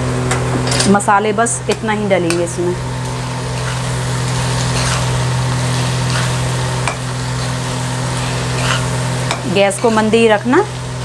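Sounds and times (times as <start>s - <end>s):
steady low hum: 0.0s - 11.0s
okra sizzling in oil: 2.5s - 11.0s
spatula scraping pan: 3.2s - 10.2s.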